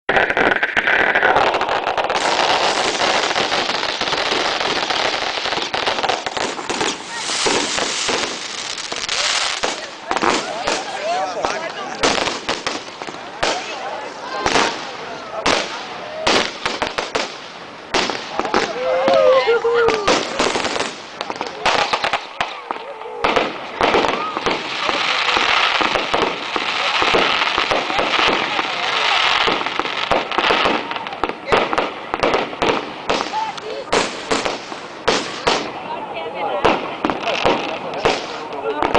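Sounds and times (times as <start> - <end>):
fireworks cracking and popping: 0.0 - 38.9
steady hiss: 0.4 - 13.8.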